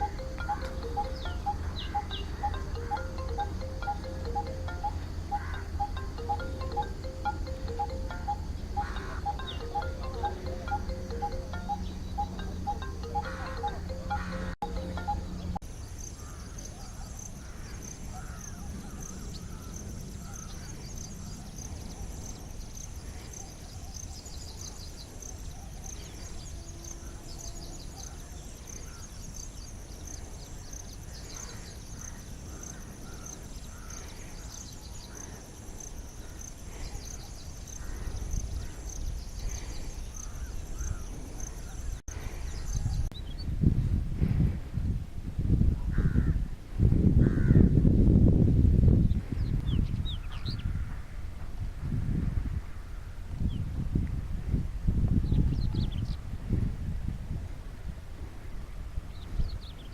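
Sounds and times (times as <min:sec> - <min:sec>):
pulsing high-pitched chirring: 0:00.0 - 0:15.6
faint bird calls: 0:04.4 - 0:06.0.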